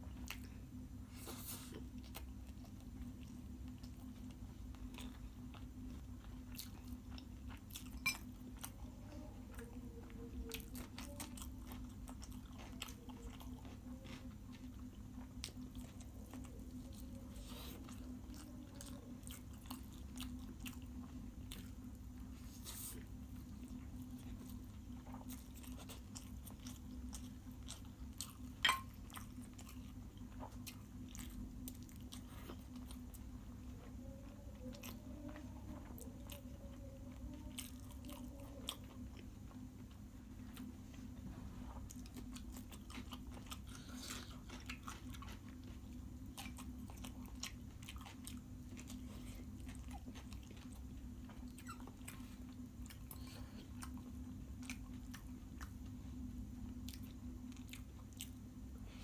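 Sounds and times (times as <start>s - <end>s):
person chewing food: 0.0s - 59.0s
steady low hum: 0.0s - 59.0s.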